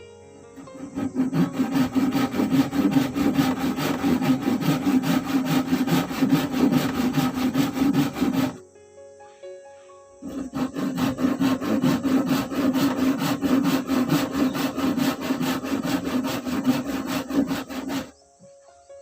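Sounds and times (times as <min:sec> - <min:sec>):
hand sawing: 0:00.6 - 0:08.6, 0:10.2 - 0:18.1.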